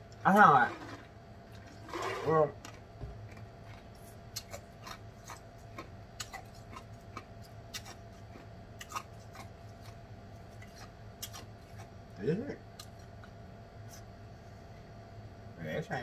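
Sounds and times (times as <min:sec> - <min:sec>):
faint steady hum: 0:00.0 - 0:16.0
chewing with wet mouth clicks: 0:03.3 - 0:11.9, 0:12.8 - 0:14.0.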